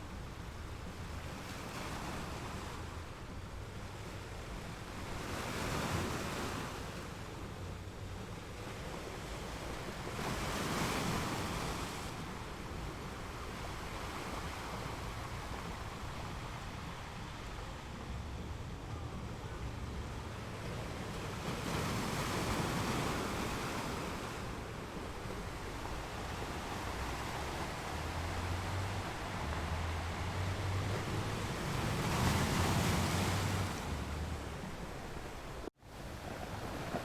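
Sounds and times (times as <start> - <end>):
sea waves breaking: 4.6 - 37.0.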